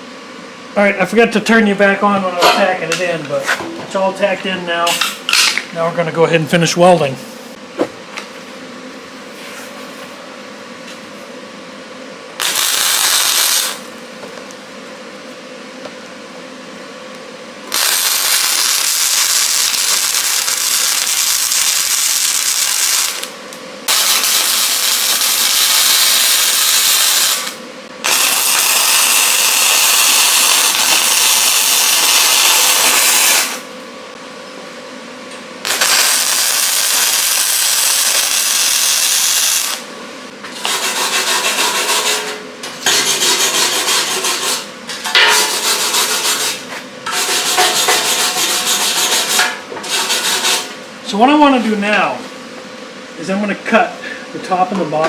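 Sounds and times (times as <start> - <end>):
arc welding hiss: 12.4 - 13.9, 17.7 - 33.7, 35.6 - 39.9, 47.2 - 50.7.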